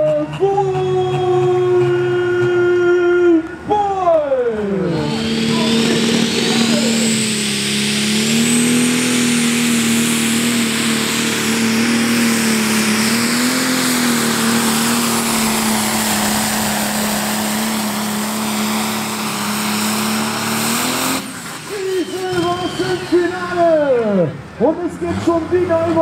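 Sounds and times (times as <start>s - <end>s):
diesel tractor engine under load: 4.3s - 26.0s
high turbo whistle: 4.9s - 24.1s.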